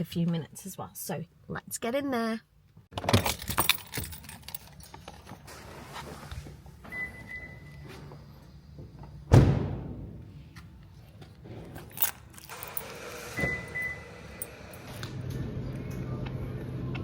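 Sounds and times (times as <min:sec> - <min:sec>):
car door shutting: 0:12.9 - 0:14.4.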